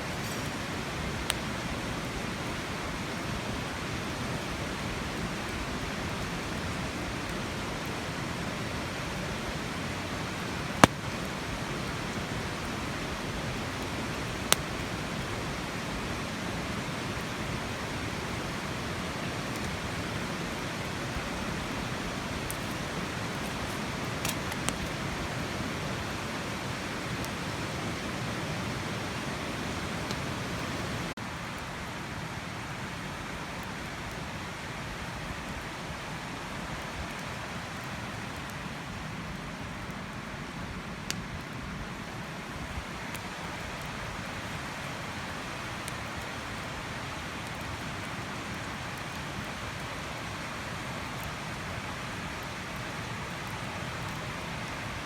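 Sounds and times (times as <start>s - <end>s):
fire popping: 0.0s - 2.0s, 10.2s - 17.3s, 21.5s - 26.1s
campfire burning: 0.0s - 55.0s.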